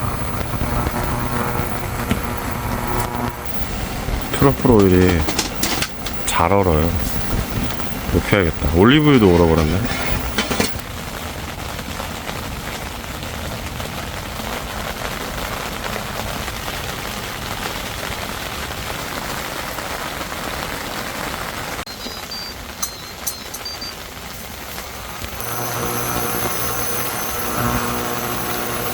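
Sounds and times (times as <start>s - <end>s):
rain on shelter roof: 0.0s - 28.9s.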